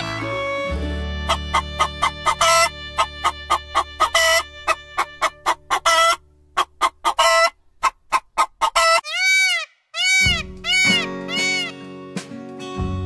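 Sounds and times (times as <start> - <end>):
longer louder bird call: 8.8 - 11.8.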